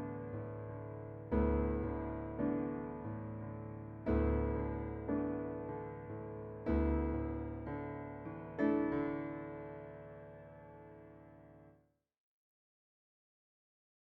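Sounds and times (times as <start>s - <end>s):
slow solo piano music: 0.0s - 11.7s.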